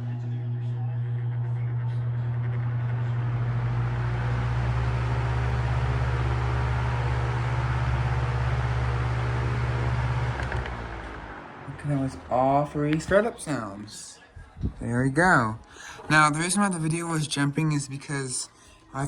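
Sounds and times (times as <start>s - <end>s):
electric fan motor hum: 0.0s - 14.0s.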